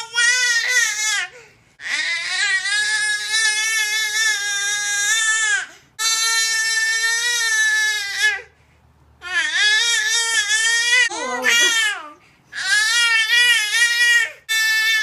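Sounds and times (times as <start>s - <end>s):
baby crying: 9.2s - 15.0s.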